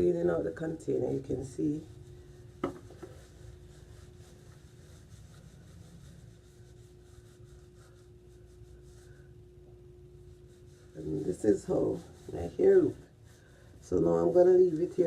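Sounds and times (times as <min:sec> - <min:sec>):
rubbing and handling: 0:00.0 - 0:15.0
sharp knock on container: 0:02.6 - 0:03.0.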